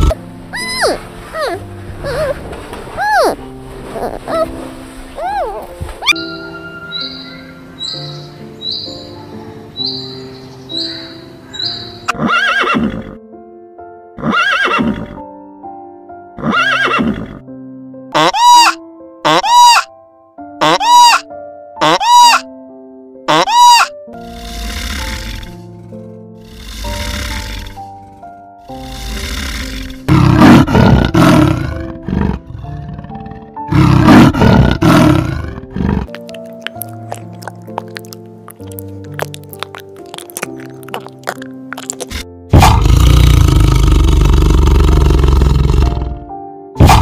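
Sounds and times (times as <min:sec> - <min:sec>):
background music with sustained notes: 0:00.0 - 0:47.0
horse whinnying: 0:12.1 - 0:13.2, 0:14.2 - 0:15.2, 0:16.4 - 0:17.4
big cat roaring: 0:24.2 - 0:36.2, 0:42.1 - 0:47.0.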